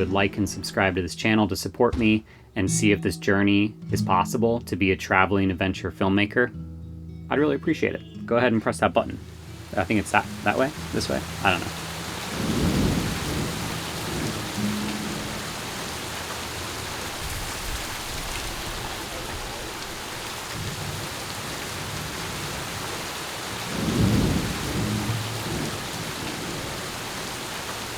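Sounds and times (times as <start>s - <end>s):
rain hiss: 9.2s - 27.9s
thunder rolling: 9.8s - 27.6s.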